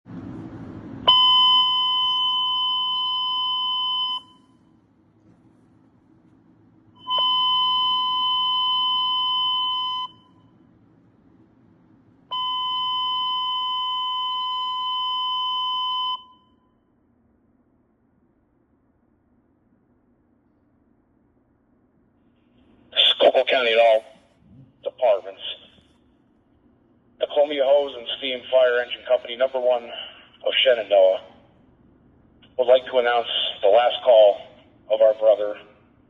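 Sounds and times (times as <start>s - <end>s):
faint radio hiss: 22.9s - 26.0s, 27.2s - 31.4s, 32.5s - 35.7s.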